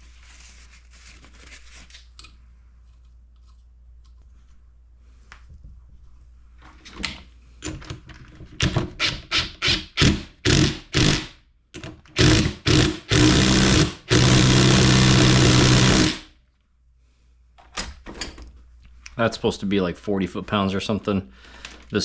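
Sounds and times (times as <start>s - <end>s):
cordless power wrench whirring: 9.0s - 11.3s, 12.2s - 16.3s.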